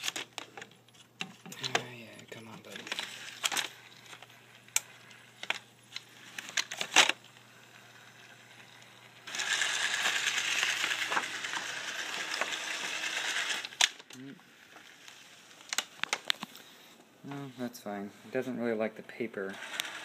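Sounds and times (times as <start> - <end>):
robot motors whirring on paper: 9.2 - 13.9, 19.5 - 20.0.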